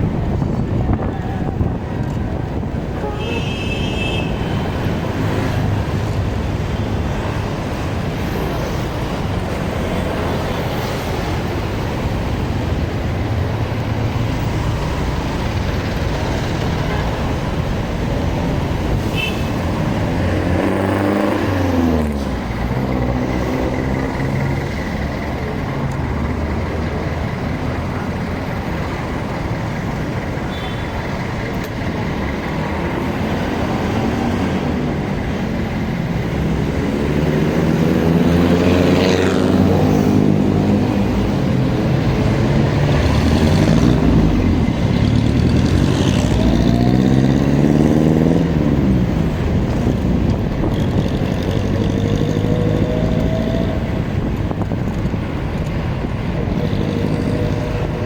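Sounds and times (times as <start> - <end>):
traffic noise: 0.0 - 58.0
motorcycle engine speeding up and slowing: 31.8 - 58.0.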